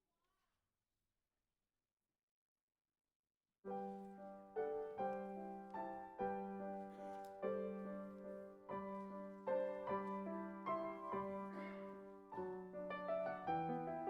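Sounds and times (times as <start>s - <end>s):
gentle piano chords: 3.7s - 14.0s.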